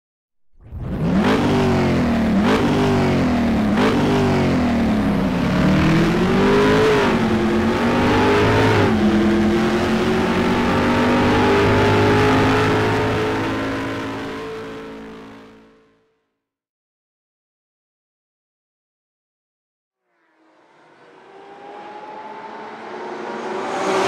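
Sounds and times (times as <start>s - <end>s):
car engine accelerating: 0.6s - 15.9s, 20.2s - 24.0s.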